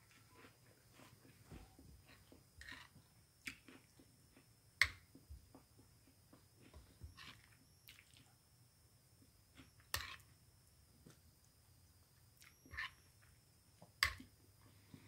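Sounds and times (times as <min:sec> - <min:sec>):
close-up chewing and mouth sounds: 0:00.0 - 0:08.4.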